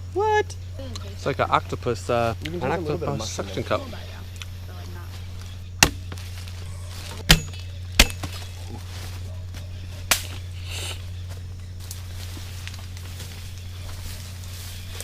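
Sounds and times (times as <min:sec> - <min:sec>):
steady low hum: 0:00.0 - 0:15.0
machete chopping tree trunk: 0:05.8 - 0:06.2, 0:07.2 - 0:08.5, 0:10.1 - 0:10.5.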